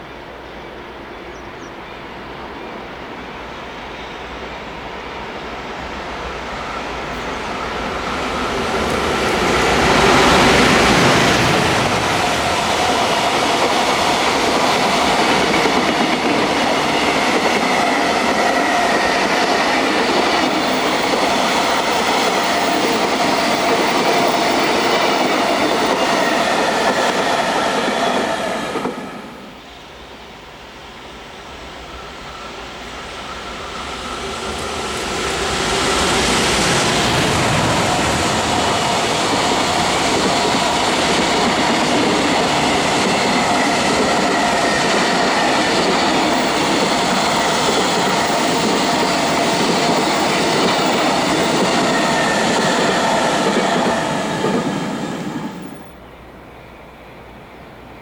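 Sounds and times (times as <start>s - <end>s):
freight train passing: 0.0s - 58.0s.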